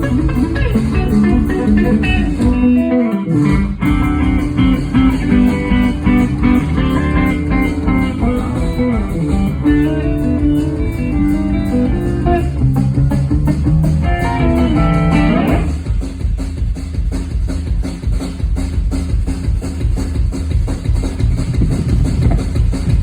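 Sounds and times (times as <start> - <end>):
electric guitar lead notes: 0.0 - 15.8
drums and bass: 0.0 - 23.0.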